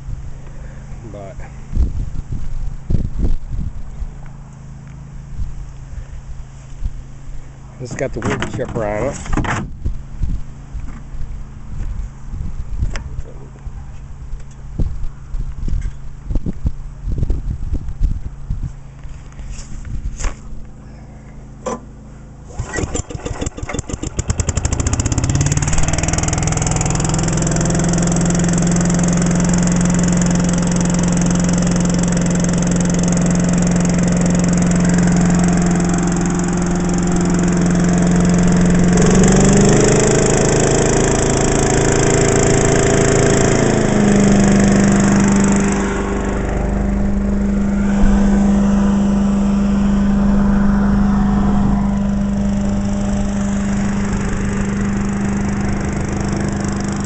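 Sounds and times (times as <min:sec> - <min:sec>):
small gasoline engine running: 0:20.7 - 0:57.0.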